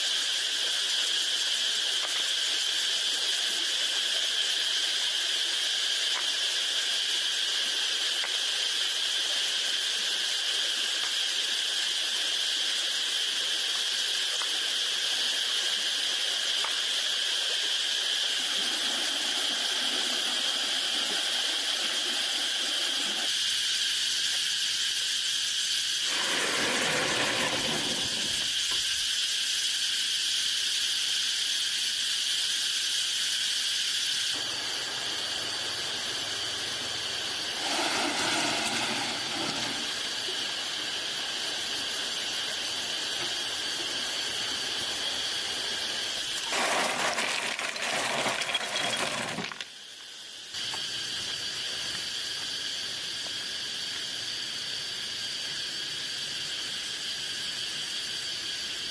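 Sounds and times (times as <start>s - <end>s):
insects chirping: 0.0s - 58.9s
stream water running: 13.1s - 23.3s, 26.1s - 28.6s, 34.4s - 49.9s.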